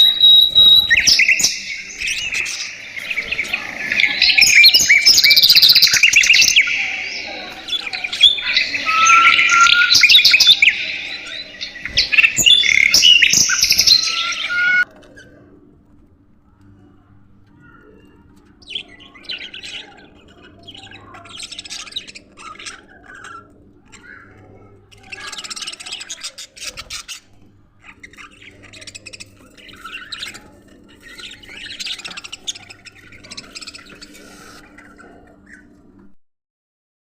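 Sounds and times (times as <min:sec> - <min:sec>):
budgerigars chirping: 0:00.0 - 0:14.8, 0:27.8 - 0:35.7.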